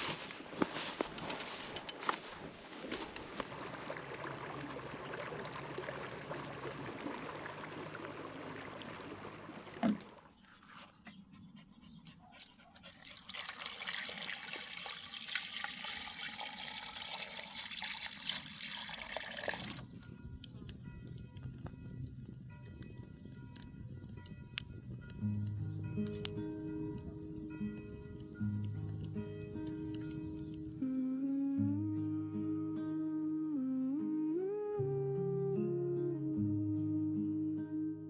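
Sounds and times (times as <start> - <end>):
water trickling and pouring: 3.5 - 11.0, 12.0 - 30.8
soft music tones: 19.9 - 38.0.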